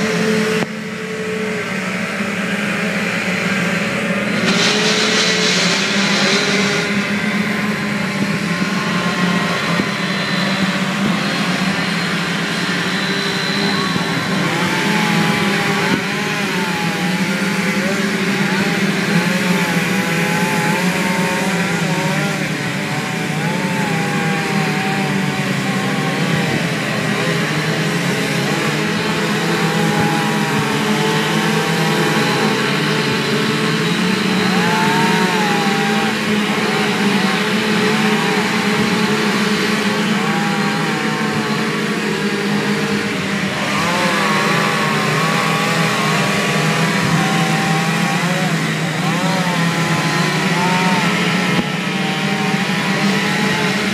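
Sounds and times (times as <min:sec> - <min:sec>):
chainsaw cutting wood: 0:12.5 - 0:53.9.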